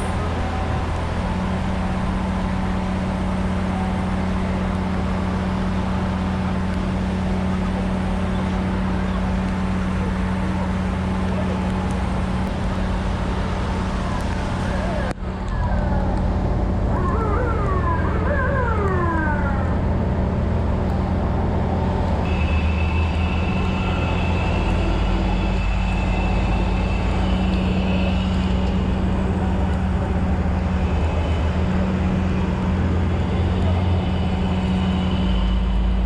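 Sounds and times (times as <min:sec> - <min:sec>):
siren wailing: 0:14.6 - 0:20.4.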